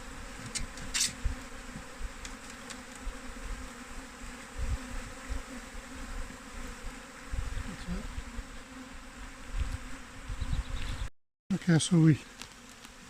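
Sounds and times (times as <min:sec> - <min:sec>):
bees buzzing: 0:00.0 - 0:11.0, 0:11.7 - 0:13.0.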